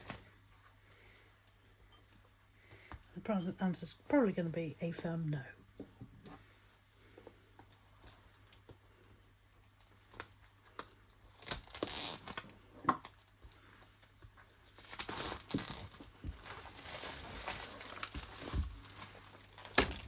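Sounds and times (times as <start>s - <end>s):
plastic crinkling: 7.7s - 20.0s
packaging tearing: 9.8s - 13.2s, 14.6s - 20.0s.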